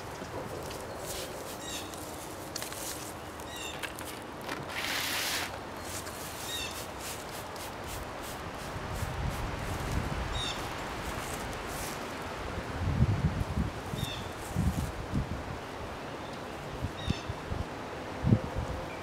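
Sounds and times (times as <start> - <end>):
small birds chirping: 0.7 - 4.0, 5.8 - 7.0.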